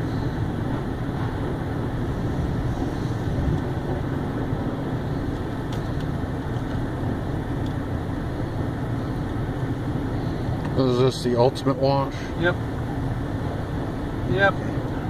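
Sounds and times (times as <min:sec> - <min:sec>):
car wash machinery rumbling: 0:00.0 - 0:15.0.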